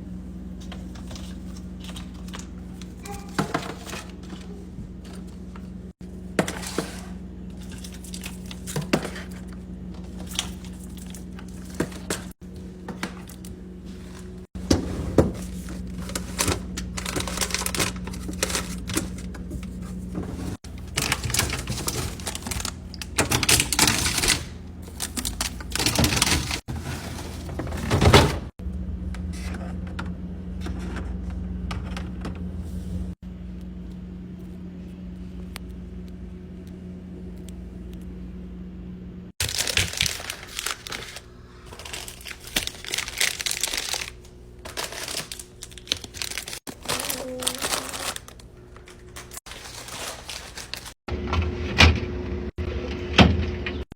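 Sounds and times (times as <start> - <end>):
steady low hum: 0.0 - 53.1
wrappers rustling: 15.4 - 27.7, 39.4 - 51.0.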